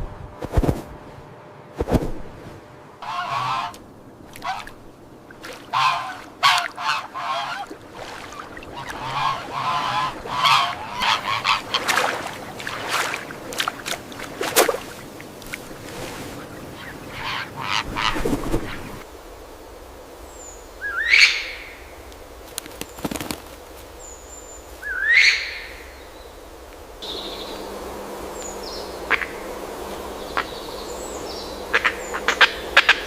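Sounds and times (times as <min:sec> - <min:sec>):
farm fowl calling: 0:03.0 - 0:04.8, 0:05.4 - 0:13.8, 0:16.4 - 0:19.0, 0:24.8 - 0:25.8, 0:31.7 - 0:33.0.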